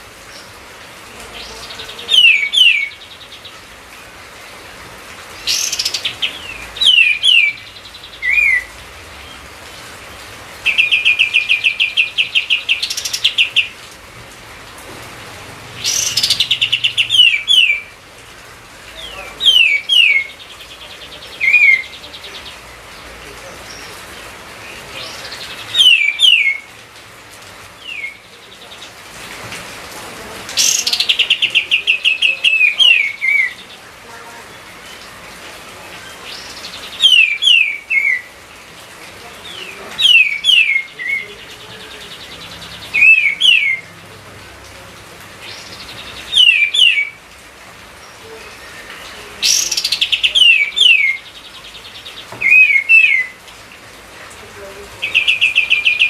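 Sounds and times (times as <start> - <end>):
bird whistling: 6.8 - 8.7, 43.0 - 43.8, 46.3 - 47.2, 52.4 - 53.4.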